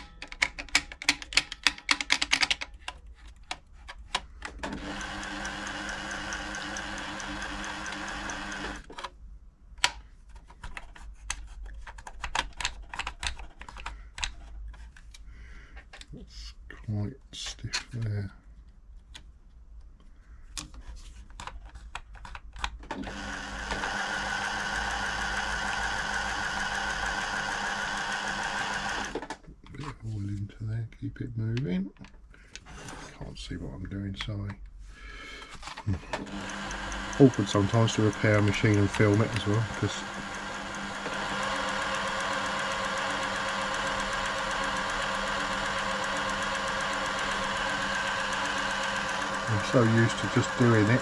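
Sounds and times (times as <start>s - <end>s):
sewing machine clicks: 3.5s - 9.1s, 22.6s - 29.4s, 35.6s - 51.0s
sewing machine running: 4.6s - 8.9s, 22.9s - 29.3s, 35.9s - 51.0s.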